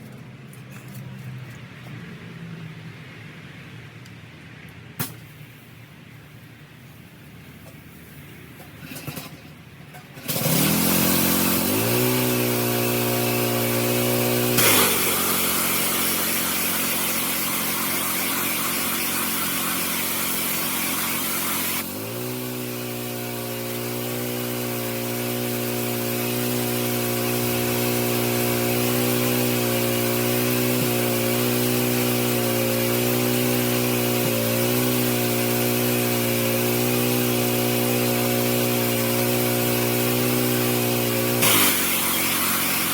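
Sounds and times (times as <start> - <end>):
pressure washer engine running: 8.8 - 42.9
water spray hissing: 14.6 - 22.0, 41.4 - 42.9.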